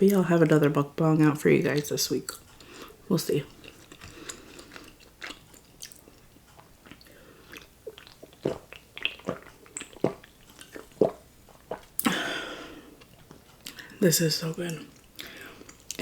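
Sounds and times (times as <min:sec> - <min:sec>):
wet mouth clicks and smacks: 0:06.8 - 0:12.1.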